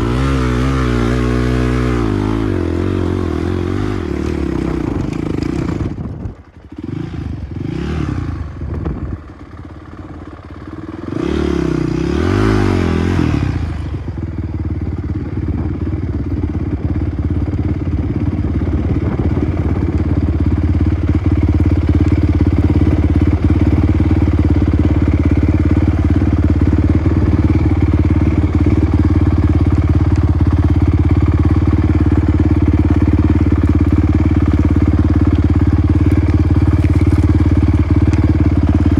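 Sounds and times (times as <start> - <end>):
dirt bike engine revving: 0.0 - 6.0, 6.8 - 8.6, 11.0 - 14.0, 21.8 - 38.9.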